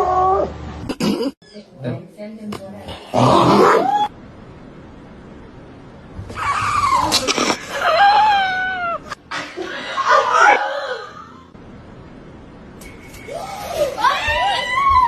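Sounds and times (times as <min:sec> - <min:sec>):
animal howling call: 0:03.2 - 0:04.1, 0:06.4 - 0:09.1.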